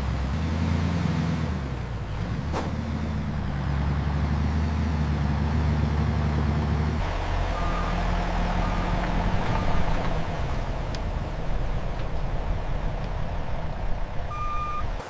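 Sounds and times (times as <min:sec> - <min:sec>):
heavy vehicle engine running: 0:00.0 - 0:15.0
reversing alarm beeping: 0:07.5 - 0:08.0, 0:14.3 - 0:15.0.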